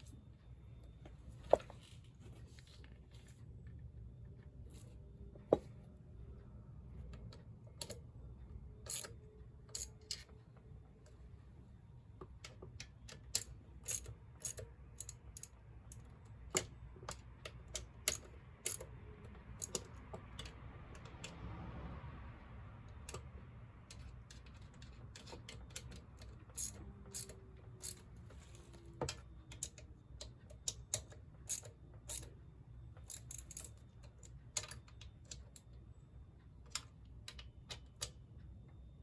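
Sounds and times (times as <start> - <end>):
hand tools clicking and tapping: 12.2 - 21.4, 23.0 - 32.3.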